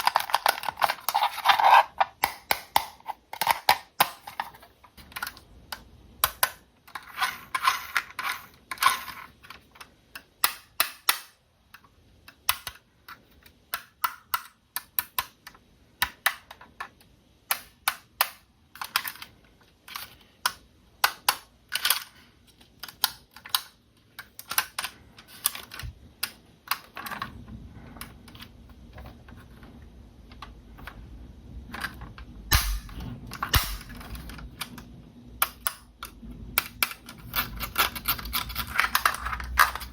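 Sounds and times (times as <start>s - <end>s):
plastic parts clicking: 0.0s - 31.0s, 31.6s - 39.9s
steady low hum: 24.8s - 39.9s.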